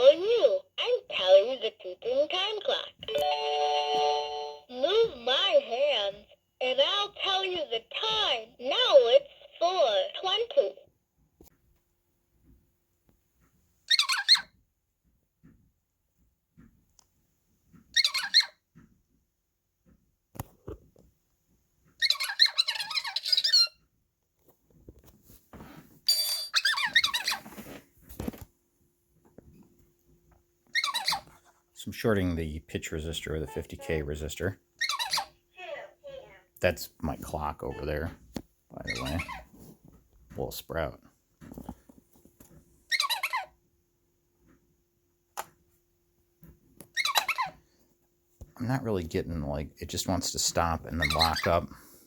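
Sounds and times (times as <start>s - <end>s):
squeaky sped-up toy voice: 0.0s - 3.0s, 4.7s - 10.8s, 38.8s - 39.4s, 51.0s - 51.6s.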